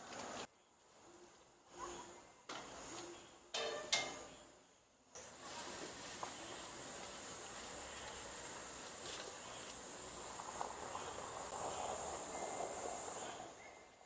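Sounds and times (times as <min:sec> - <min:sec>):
outdoor background hiss: 0:00.0 - 0:14.0
insect chorus: 0:05.9 - 0:14.0.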